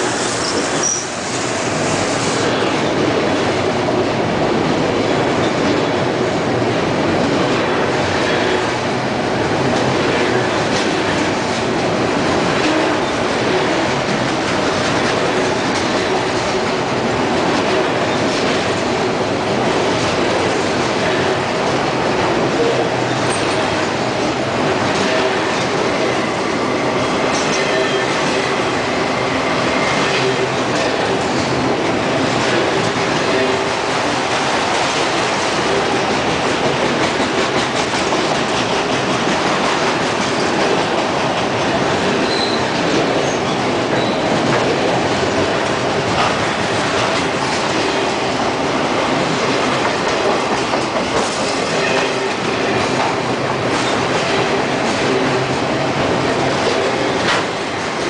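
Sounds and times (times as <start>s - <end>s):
steel wheels rumbling on rails: 0.0s - 58.0s
high wheel squeaks: 0.4s - 1.2s, 42.2s - 44.3s.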